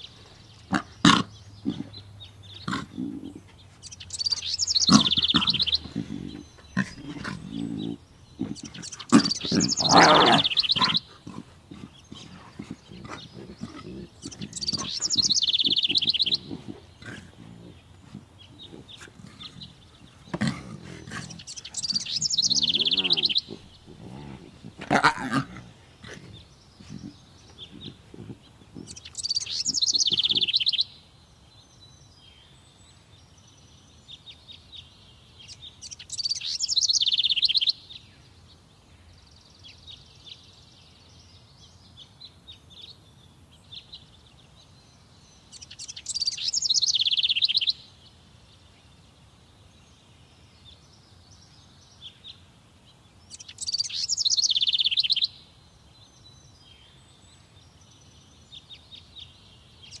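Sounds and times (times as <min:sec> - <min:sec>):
songbird trilling: 0:00.0 - 0:31.0, 0:35.5 - 0:37.9, 0:45.5 - 0:47.8, 0:53.3 - 0:55.4
soft bird chirps: 0:00.0 - 1:00.0.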